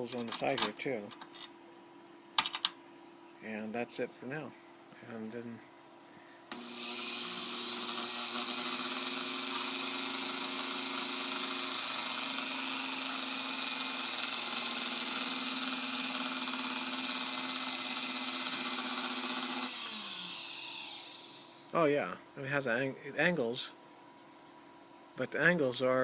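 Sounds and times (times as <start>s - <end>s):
rotary tool whining: 6.5s - 21.7s.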